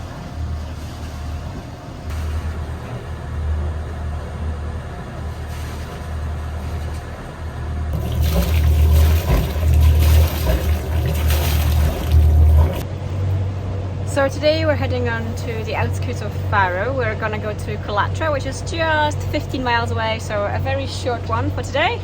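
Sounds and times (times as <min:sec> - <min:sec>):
low engine drone: 0:00.0 - 0:22.0
water rushing past hull: 0:07.9 - 0:12.9.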